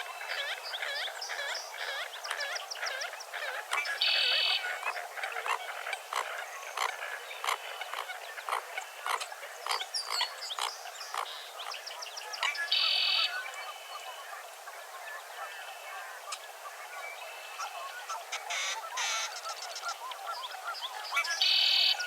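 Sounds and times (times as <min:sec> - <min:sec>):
frogs croaking: 0:00.0 - 0:14.3, 0:15.3 - 0:22.0
birds chirping: 0:15.0 - 0:22.0.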